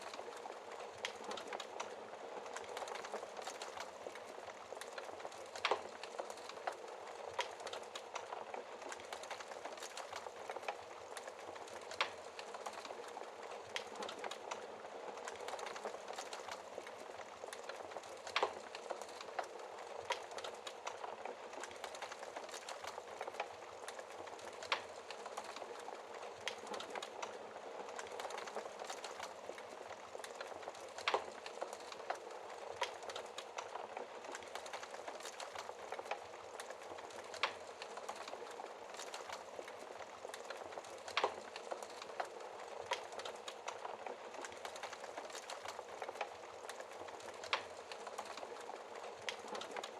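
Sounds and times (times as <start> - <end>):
log fire crackling: 0.0 - 49.9.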